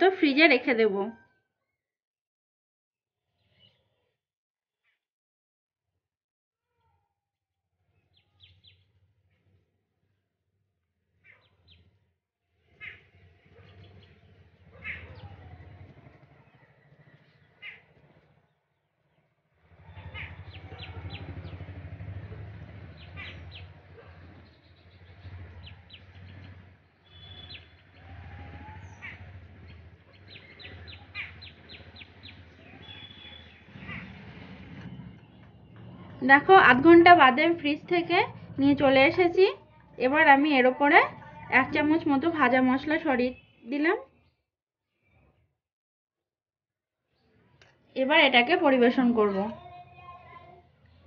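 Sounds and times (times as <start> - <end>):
birds chirping: 8.0 - 8.9, 12.7 - 18.5, 19.8 - 44.3
falling bird calls: 12.7 - 18.2, 19.8 - 36.7.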